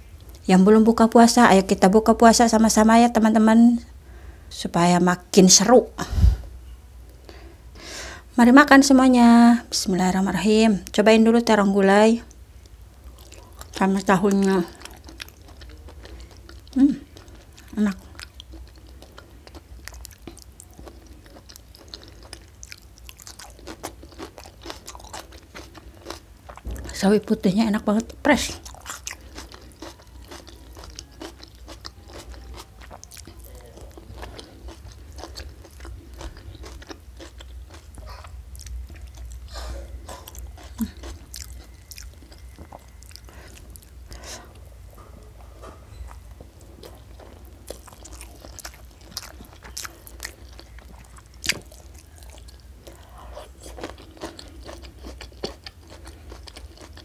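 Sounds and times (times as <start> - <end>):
chewing and crunching: 12.2 - 27.1, 27.8 - 57.0.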